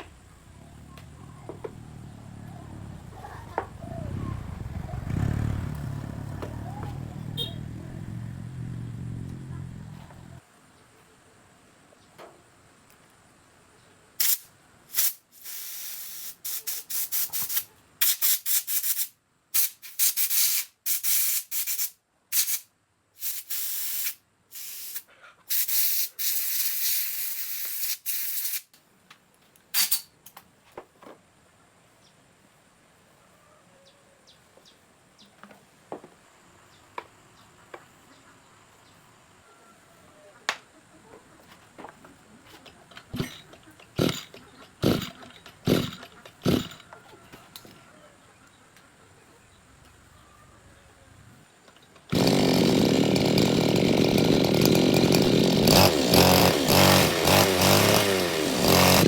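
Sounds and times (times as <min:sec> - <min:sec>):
compressed air spray bursts: 0:14.2 - 0:28.7, 0:29.8 - 0:30.0.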